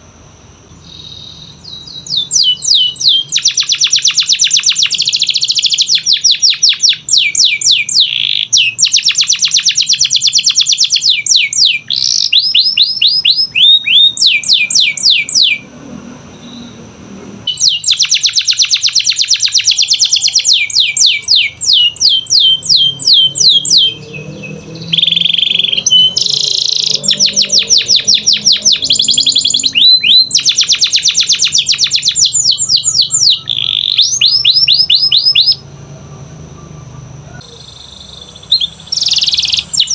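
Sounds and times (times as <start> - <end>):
canary singing trills: 0.6 - 15.7, 16.3 - 16.9, 17.5 - 39.9.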